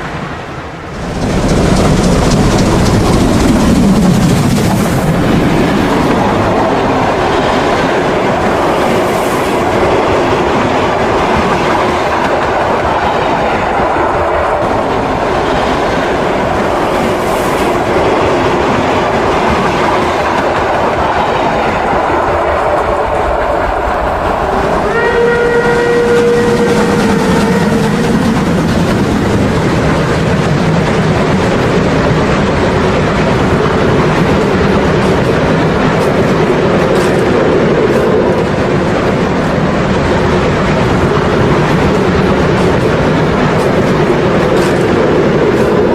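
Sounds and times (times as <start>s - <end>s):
model train wheels on track: 0.8s - 45.9s
model steam locomotive running: 0.9s - 12.9s, 14.1s - 45.9s
steam whistle: 24.8s - 28.2s.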